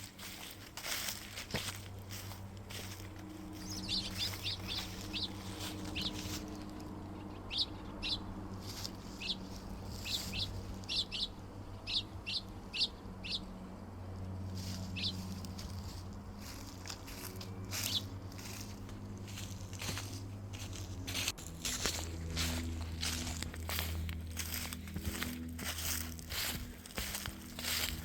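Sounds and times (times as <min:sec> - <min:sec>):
steady low hum: 0:00.0 - 0:28.0
small bird chirping: 0:03.6 - 0:06.6, 0:07.4 - 0:13.5, 0:14.6 - 0:18.7.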